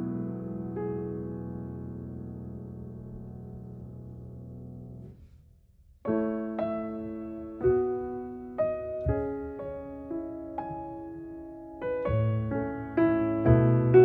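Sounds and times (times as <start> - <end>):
piano music: 0.0 - 5.2, 6.0 - 14.0.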